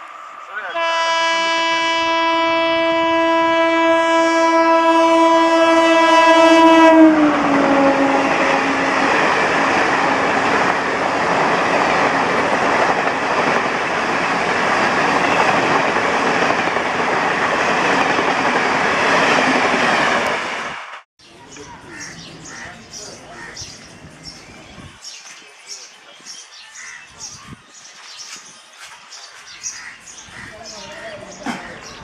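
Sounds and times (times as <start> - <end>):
train wheels roaring on rails: 0.0 - 21.0
locomotive horn blast: 0.7 - 10.4.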